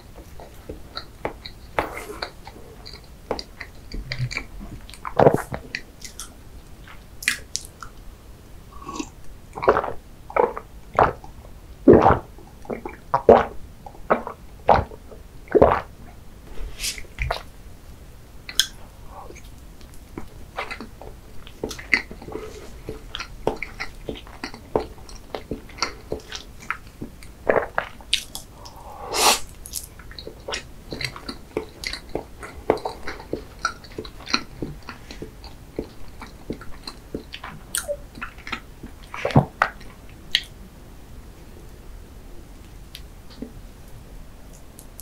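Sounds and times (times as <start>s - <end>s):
wet chewing smacks: 18.5s - 28.8s.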